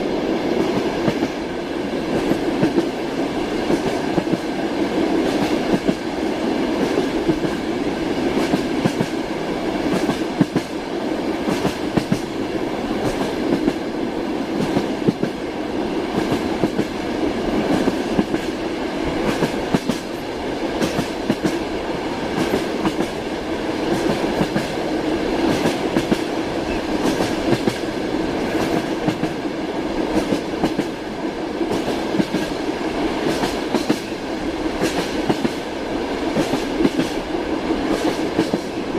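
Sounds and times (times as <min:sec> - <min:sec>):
train wheels rattling on rails: 0:00.0 - 0:38.9.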